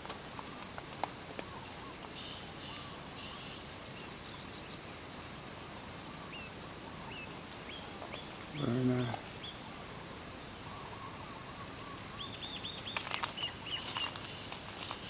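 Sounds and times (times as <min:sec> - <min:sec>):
steady background hiss: 0:00.0 - 0:15.0
birds chirping: 0:06.1 - 0:15.0.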